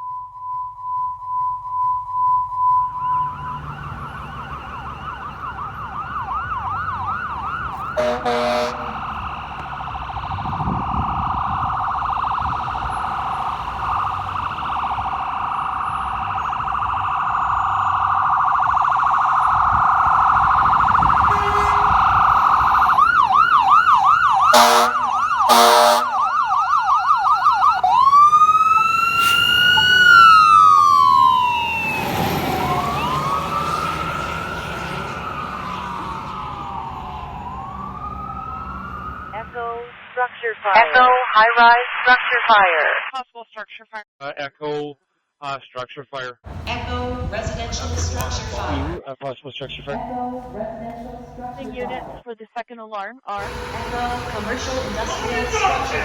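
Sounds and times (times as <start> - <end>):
warbling electronic siren: 0.0 - 39.6, 53.4 - 56.0
air horn blasts: 7.9 - 9.3, 20.9 - 23.1, 24.4 - 26.3, 53.4 - 56.0.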